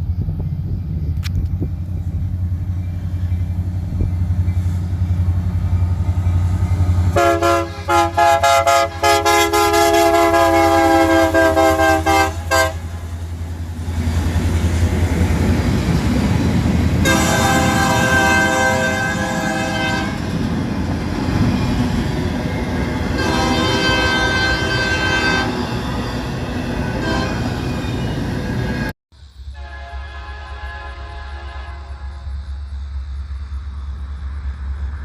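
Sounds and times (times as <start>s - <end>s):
low train rumble: 0.0s - 35.0s
locomotive air horn blasts: 7.1s - 13.2s, 17.0s - 20.4s, 23.1s - 25.8s, 26.8s - 27.8s, 29.5s - 32.4s.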